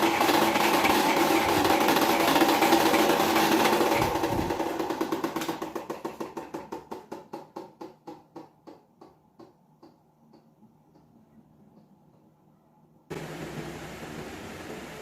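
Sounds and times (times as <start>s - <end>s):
electric fan coasting down: 0.0s - 6.0s, 13.1s - 15.0s.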